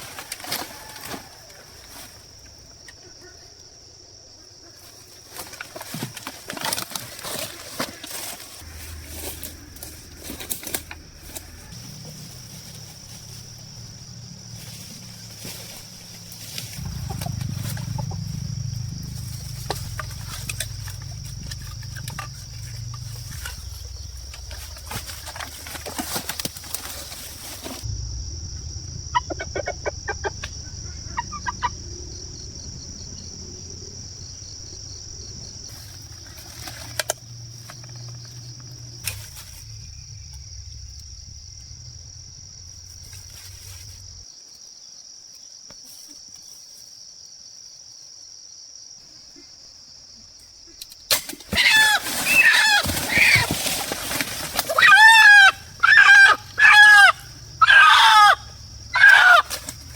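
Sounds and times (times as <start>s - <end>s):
high insect buzz: 8.5s - 48.9s
fowl clucking: 29.2s - 30.5s
wings flapping: 51.5s - 55.5s.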